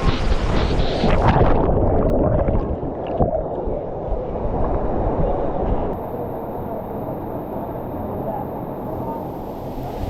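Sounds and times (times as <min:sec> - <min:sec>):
gurgling bubbles: 0:00.0 - 0:04.9
muffled underwater rushing rumble: 0:00.0 - 0:10.0.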